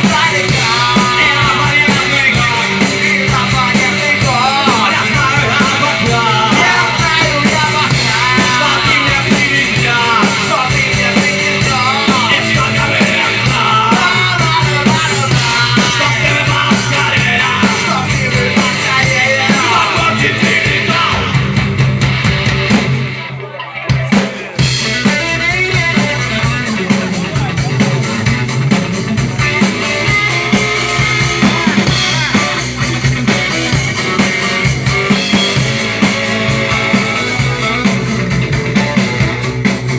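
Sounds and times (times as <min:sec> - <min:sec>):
person singing: 0:00.0 - 0:21.4, 0:33.9 - 0:39.3
rock band playing: 0:00.0 - 0:39.9.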